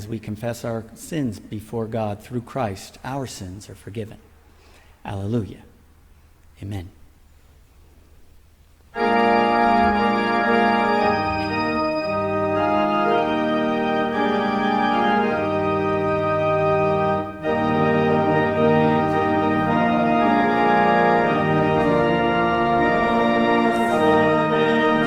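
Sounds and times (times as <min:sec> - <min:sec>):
organ playing sustained chords: 0:08.9 - 0:25.0.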